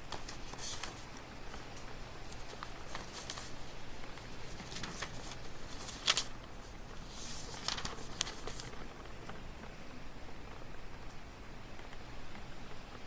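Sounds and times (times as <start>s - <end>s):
soft rustling and handling: 0.0s - 9.4s
faint low hum: 0.0s - 13.0s.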